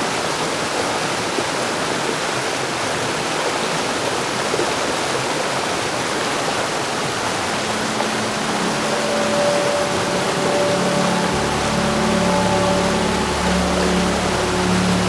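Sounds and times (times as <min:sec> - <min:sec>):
soft sustained musical tones: 0:06.5 - 0:15.0
low drone: 0:07.0 - 0:15.0.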